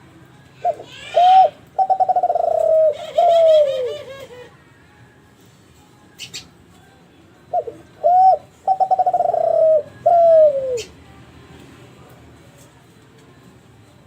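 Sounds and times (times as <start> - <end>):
dove cooing: 0.6 - 4.6, 7.5 - 11.0.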